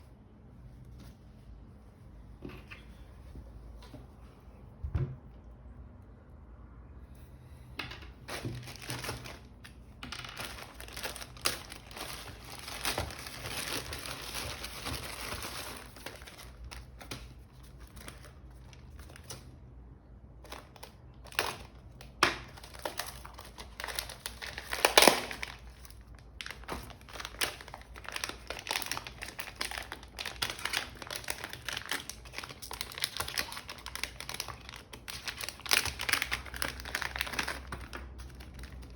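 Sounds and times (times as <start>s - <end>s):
plastic packaging crinkling: 8.2s - 19.6s, 20.4s - 38.9s.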